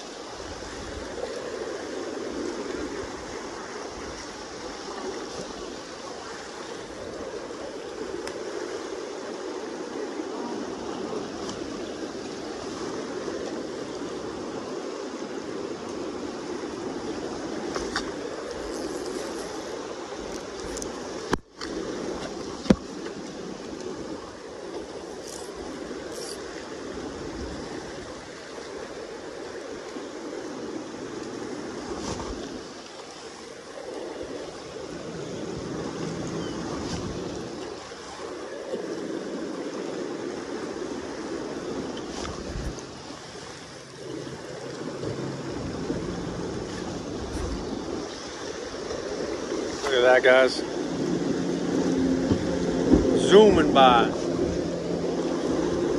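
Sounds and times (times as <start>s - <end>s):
river water rushing: 0.0s - 55.9s.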